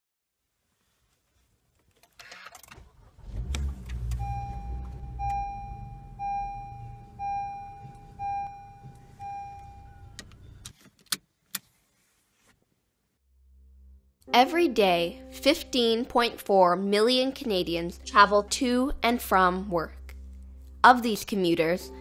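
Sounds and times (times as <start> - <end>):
car engine starting and idling: 2.6 - 10.7
seatbelt reminder chime: 4.1 - 10.6.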